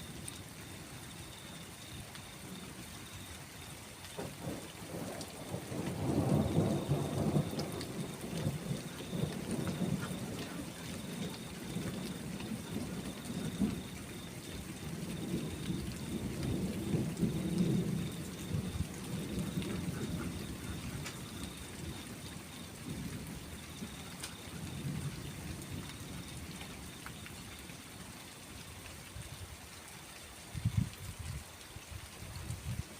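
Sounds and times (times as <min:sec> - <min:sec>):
raindrop ticks: 0:00.0 - 0:32.9
steady rain: 0:00.0 - 0:32.9
rolling thunder: 0:04.2 - 0:27.0.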